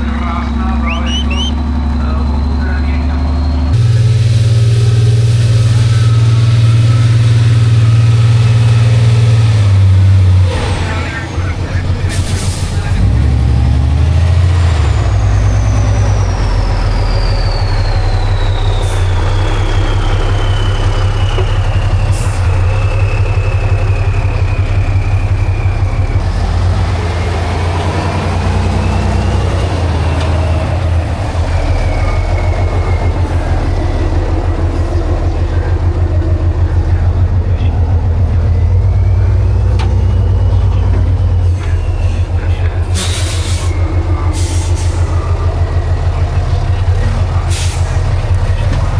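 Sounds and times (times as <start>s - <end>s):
truck diesel engine under load: 0.0s - 48.9s.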